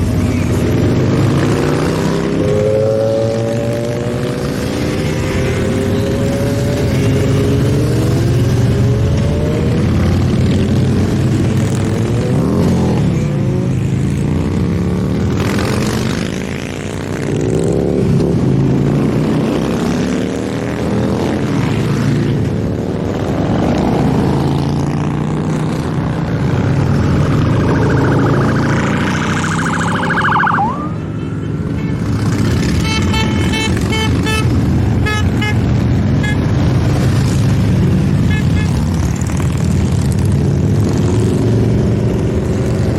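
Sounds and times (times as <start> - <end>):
motorcycles riding past: 0.0 - 42.9
high siren-like tone: 26.7 - 31.6
rapid short beeps: 27.4 - 30.8.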